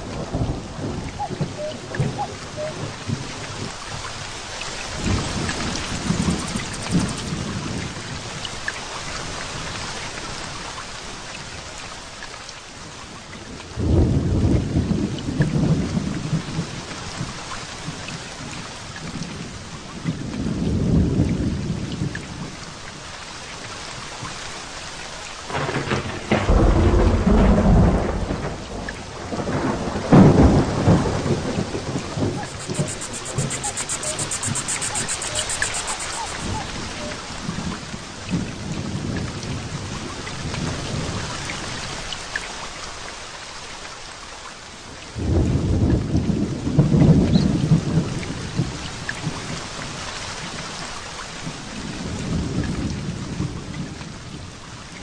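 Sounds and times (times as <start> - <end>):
thunder rolling: 0.0 - 3.8, 4.9 - 8.1, 25.5 - 41.2
heavy rain falling: 0.0 - 55.0
sharp thunder crack: 5.0 - 7.8, 25.5 - 37.1.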